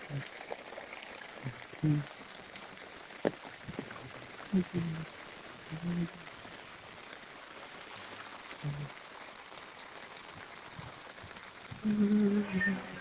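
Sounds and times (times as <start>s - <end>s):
steady rain hiss: 0.0s - 13.0s
brief voices: 11.8s - 13.0s.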